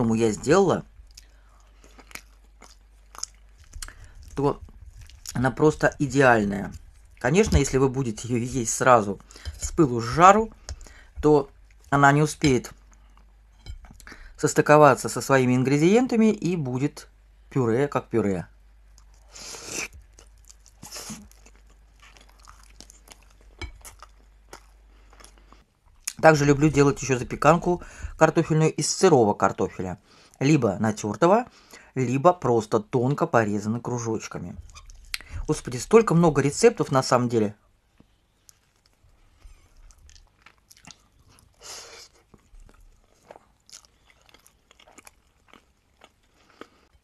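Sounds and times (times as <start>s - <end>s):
chewing with wet mouth clicks: 1.0s - 5.4s, 20.0s - 26.2s, 39.6s - 46.9s.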